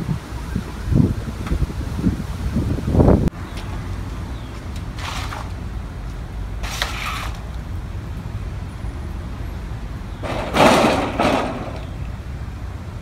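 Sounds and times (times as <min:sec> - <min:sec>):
demolition machinery rumbling: 0:02.9 - 0:13.0
debris crunching and crashing: 0:10.2 - 0:11.9.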